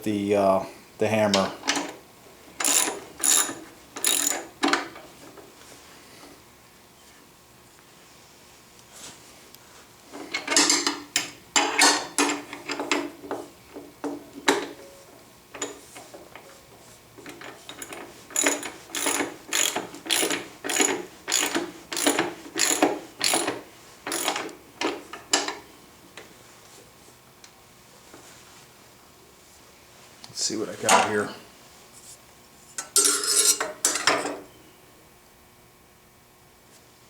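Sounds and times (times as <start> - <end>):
ratchet wrench clicking: 2.6 - 4.4, 17.8 - 24.4.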